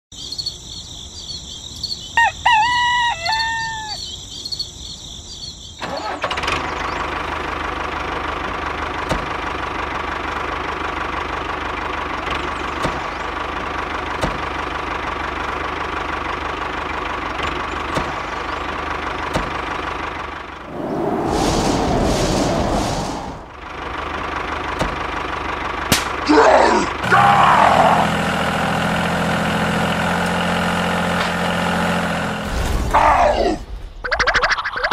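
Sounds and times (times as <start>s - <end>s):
rooster crowing: 2.2s - 4.1s.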